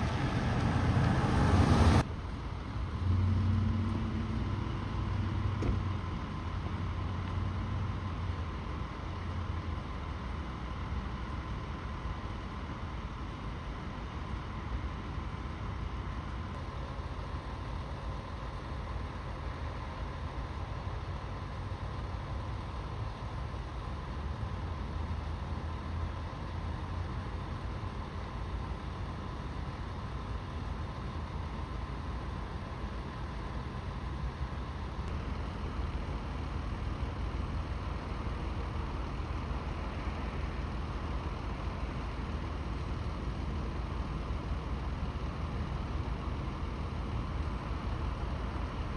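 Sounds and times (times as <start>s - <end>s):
road traffic noise: 0.0s - 11.4s, 21.6s - 48.9s
vehicle engines idling: 0.0s - 14.0s, 16.7s - 48.9s.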